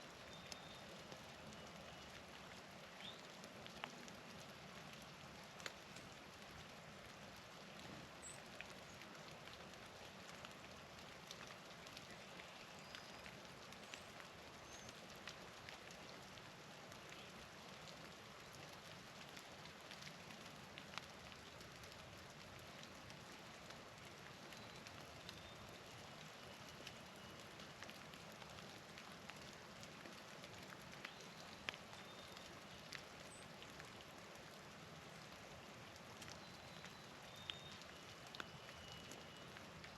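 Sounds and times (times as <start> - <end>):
rain pattering: 0.0 - 39.9
light ticks: 0.3 - 6.6, 35.9 - 39.9.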